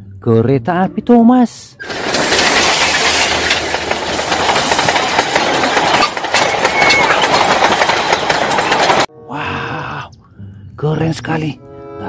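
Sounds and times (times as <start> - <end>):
locomotive wheels clattering on rails: 1.8 - 9.1.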